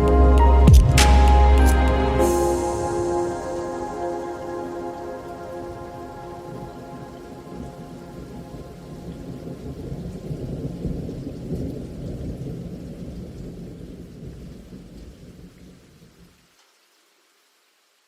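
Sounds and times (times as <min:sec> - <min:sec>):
rain: 0:00.0 - 0:18.0.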